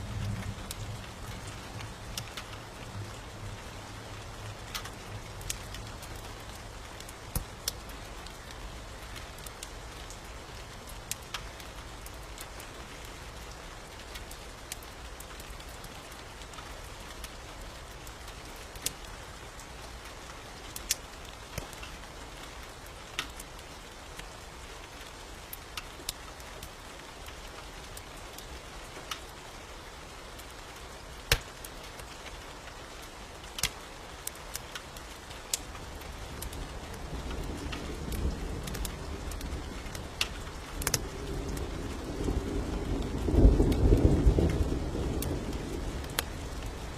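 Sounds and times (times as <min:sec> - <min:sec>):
low rumble of thunder: 0:00.0 - 0:06.8, 0:35.9 - 0:46.9
steady rain hiss: 0:00.0 - 0:46.9
wood fire crackling: 0:00.0 - 0:46.9.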